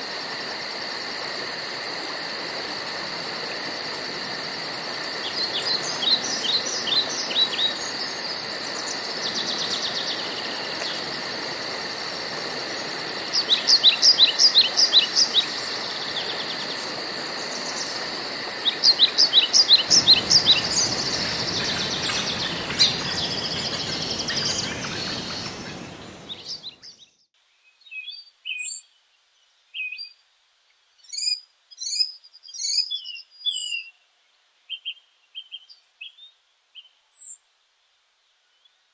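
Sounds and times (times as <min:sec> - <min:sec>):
steady hiss: 0:00.0 - 0:26.8
insects buzzing: 0:00.0 - 0:27.0
bird chirps: 0:18.6 - 0:28.9.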